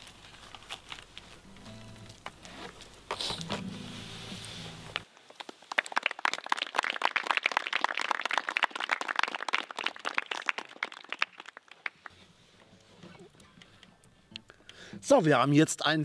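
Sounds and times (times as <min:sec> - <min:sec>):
people clapping: 0:05.3 - 0:12.2.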